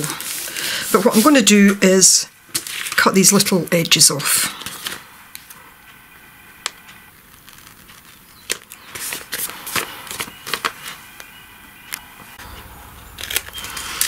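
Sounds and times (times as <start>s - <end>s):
paper rustling: 0.0s - 1.8s, 2.5s - 3.5s, 4.5s - 5.6s, 6.7s - 11.3s, 12.4s - 14.0s.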